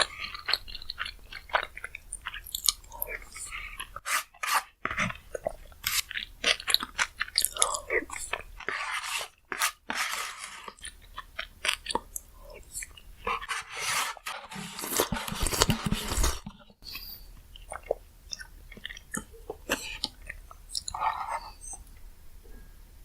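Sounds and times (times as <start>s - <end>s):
person chewing crunchy food: 0.0s - 21.9s
soft mouth clicks: 16.8s - 22.0s.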